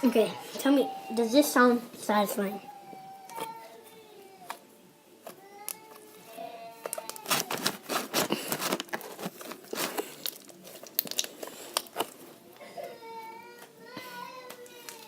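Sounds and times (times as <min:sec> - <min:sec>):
slime squished by hand: 0:06.9 - 0:12.2.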